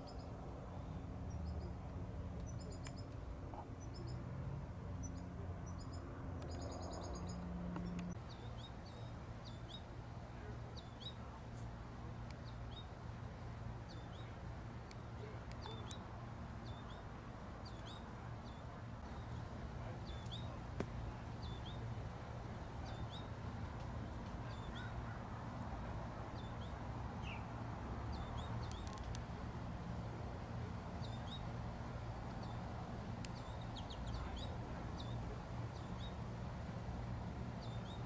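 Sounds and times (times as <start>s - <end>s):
songbird calling: 0.0s - 4.2s, 13.9s - 22.0s, 22.8s - 29.2s, 31.0s - 36.3s
steady low hum: 0.0s - 38.0s.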